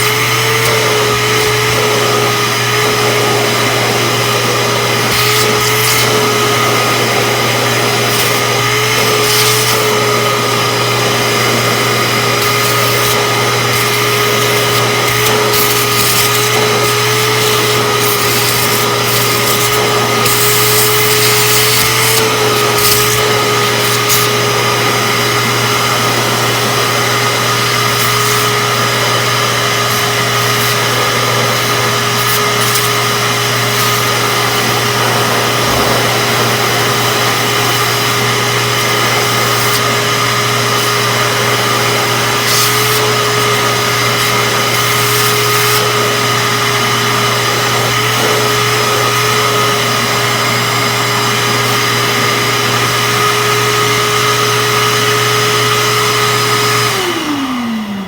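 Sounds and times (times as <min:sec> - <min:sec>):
vacuum cleaner whining: 0:00.0 - 0:58.0.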